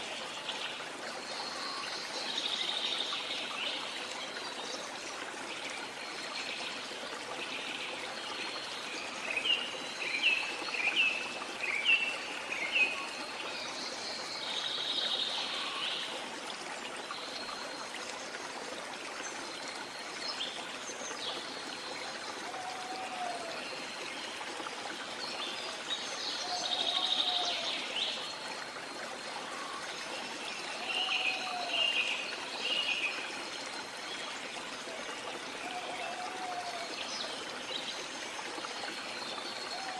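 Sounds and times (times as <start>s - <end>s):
falling water rushing: 0.0s - 39.9s
jungle birds calling: 26.4s - 27.9s, 35.7s - 36.9s, 39.6s - 39.9s.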